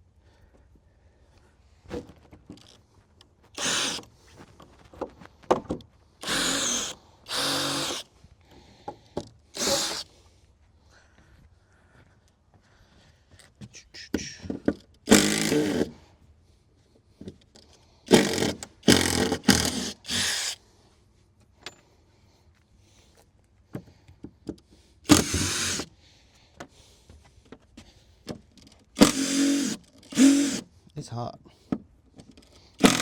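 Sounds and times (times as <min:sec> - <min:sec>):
electric drill driving screws: 0:03.6 - 0:04.1, 0:06.2 - 0:08.1, 0:09.5 - 0:10.1, 0:15.1 - 0:16.0, 0:18.1 - 0:20.6, 0:25.1 - 0:25.9, 0:29.0 - 0:30.7, 0:32.8 - 0:33.0.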